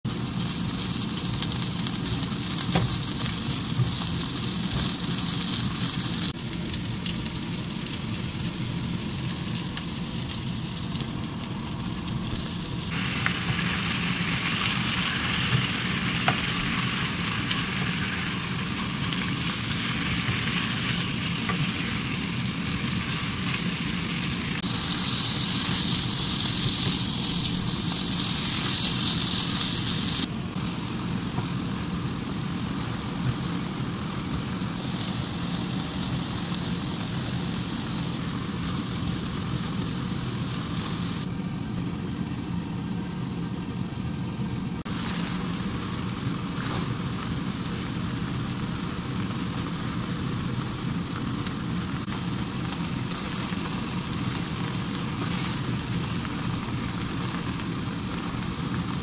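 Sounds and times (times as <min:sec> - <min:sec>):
food sizzling in hot oil: 0:00.1 - 0:41.3, 0:44.8 - 0:59.0.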